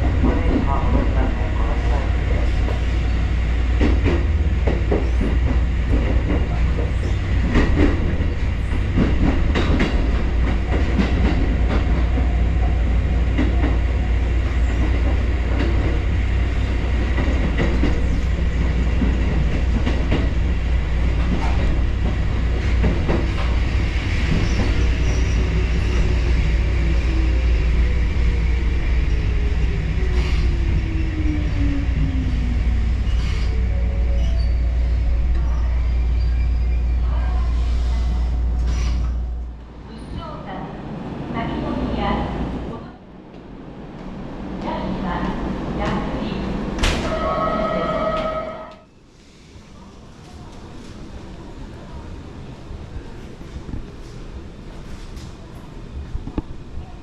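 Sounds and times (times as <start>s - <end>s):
electric train rumbling on rails: 0.0s - 57.0s.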